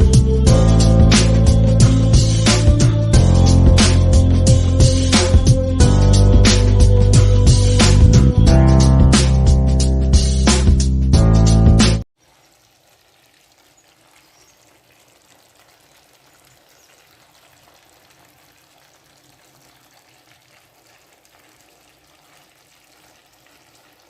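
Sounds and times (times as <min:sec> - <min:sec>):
food cooking hiss and crackles: 0:12.2 - 0:24.0.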